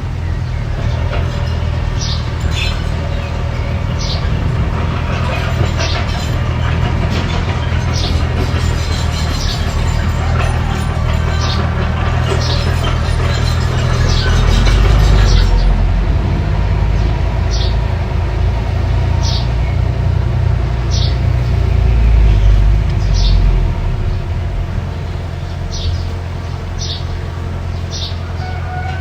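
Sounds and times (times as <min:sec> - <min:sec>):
diesel engine rumbling: 0:00.0 - 0:29.0
bird chirping: 0:20.8 - 0:29.0.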